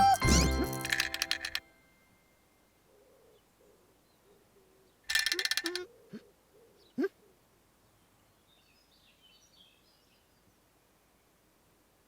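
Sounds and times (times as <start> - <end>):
bright jingling: 0.0 - 2.5.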